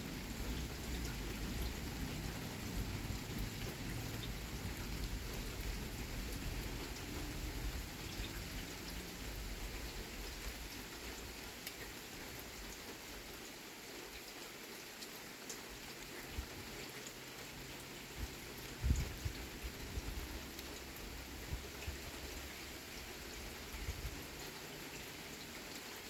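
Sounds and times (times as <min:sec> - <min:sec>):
steady rain falling: 0:00.0 - 0:26.0
low rumble of thunder: 0:00.1 - 0:10.6, 0:18.2 - 0:24.5
single raindrops hitting close: 0:15.0 - 0:26.0.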